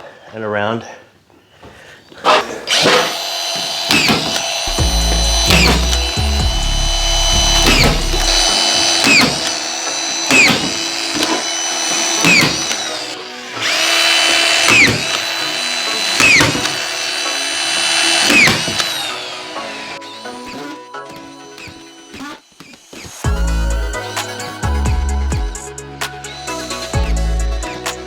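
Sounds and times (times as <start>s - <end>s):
screw gun motor whining: 2.3s - 23.3s
screw driving clatter: 2.7s - 4.7s.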